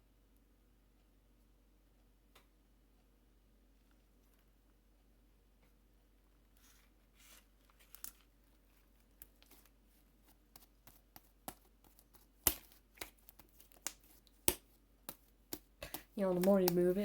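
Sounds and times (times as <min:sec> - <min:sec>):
slime squished by hand: 0:10.5 - 0:17.0.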